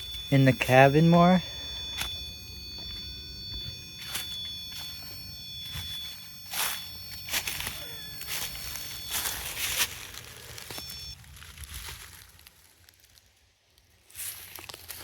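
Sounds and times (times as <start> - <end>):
thin high tone: 0.0 - 11.2
footsteps: 1.5 - 11.0.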